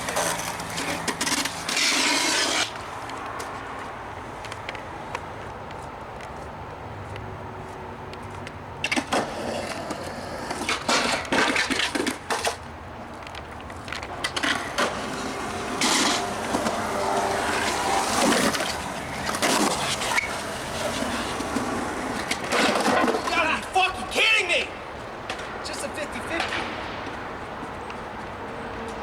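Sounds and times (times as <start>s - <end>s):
skateboard clacking on ground: 0.0s - 7.3s, 8.1s - 29.0s
skateboard wheels rolling: 0.0s - 29.0s.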